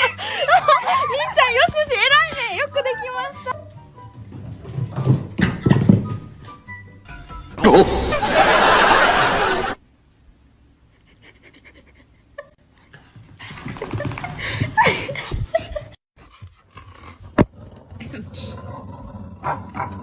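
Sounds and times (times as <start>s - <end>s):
people laughing: 0.0s - 1.5s, 7.6s - 9.8s.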